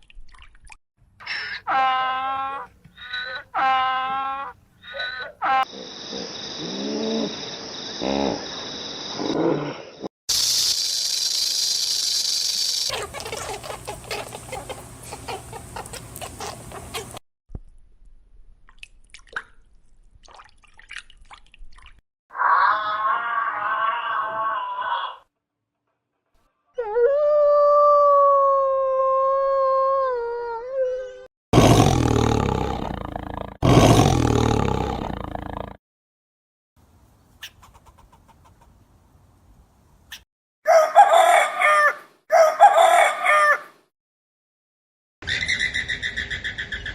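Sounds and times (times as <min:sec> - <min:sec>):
chickens clucking and chirping: 0:12.9 - 0:17.2, 0:37.4 - 0:38.8
long high-pitched animal call: 0:22.3 - 0:25.3
loud rough animal roars: 0:31.6 - 0:35.8.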